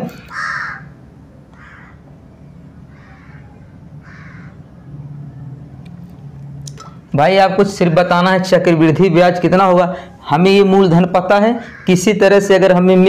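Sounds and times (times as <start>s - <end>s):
bird calling: 0.2s - 1.0s, 1.6s - 5.0s, 11.6s - 12.0s.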